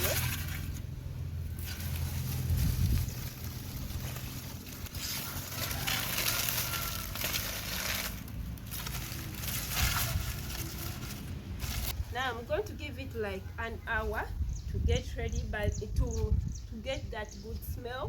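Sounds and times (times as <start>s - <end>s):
dry leaves rustling and crackling: 0.0s - 12.0s.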